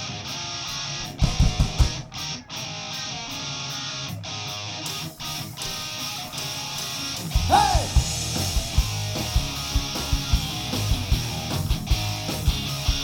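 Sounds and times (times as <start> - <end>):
bass guitar: 0.0 - 13.0
electric guitar strumming: 0.0 - 13.0
kick drum beats: 1.2 - 2.2, 7.4 - 13.0.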